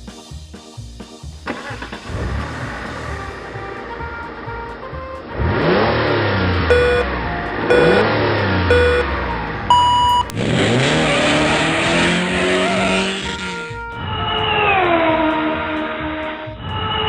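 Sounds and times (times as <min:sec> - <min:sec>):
car engine revving: 0:01.5 - 0:03.5, 0:05.2 - 0:13.8
countdown beeps: 0:06.7 - 0:07.1, 0:07.7 - 0:10.4.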